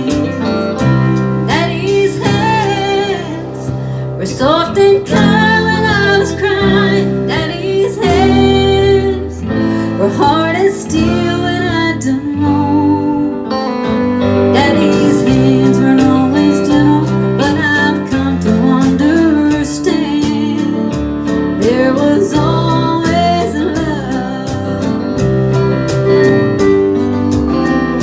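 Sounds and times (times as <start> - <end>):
steady drum beat: 0.0 - 8.8, 14.8 - 28.0
guitar: 0.0 - 28.0
live country band ballad: 0.0 - 28.0.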